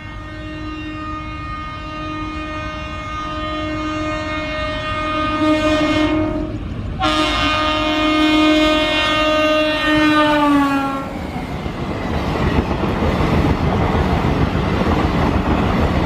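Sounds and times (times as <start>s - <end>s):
train horn blasts: 0.0s - 11.2s
train rumbling: 0.0s - 16.0s.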